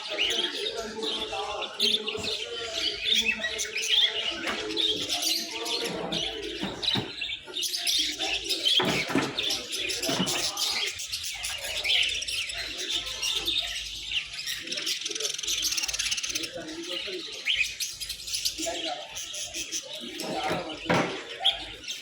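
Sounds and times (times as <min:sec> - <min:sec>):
birds chirping and twittering: 0:00.0 - 0:22.0.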